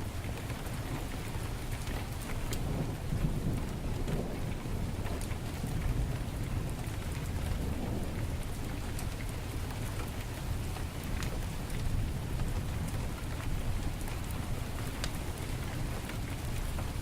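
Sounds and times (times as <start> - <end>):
heavy rain falling: 0.0 - 17.0
wood fire crackling: 0.0 - 17.0.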